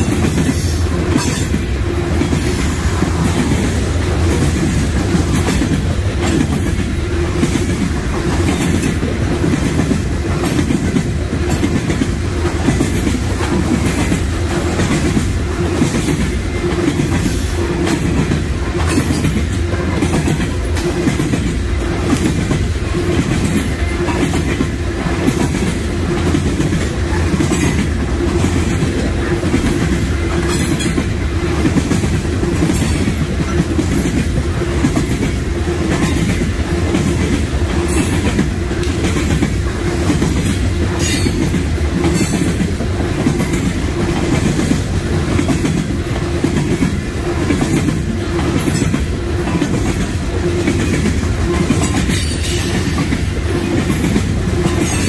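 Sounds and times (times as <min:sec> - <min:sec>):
freight train rumbling: 0:00.0 - 0:55.0
wheels clacking over rail joints: 0:00.0 - 0:55.0.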